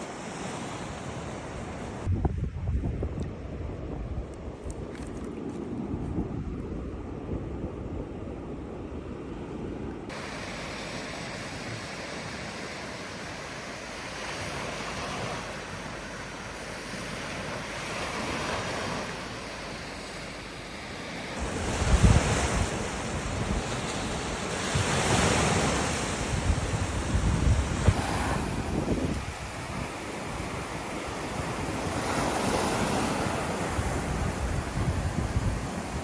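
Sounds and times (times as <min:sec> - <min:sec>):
wind buffeting microphone: 0:01.9 - 0:10.3, 0:21.4 - 0:36.0
ocean surf washing onto beach: 0:10.0 - 0:36.0.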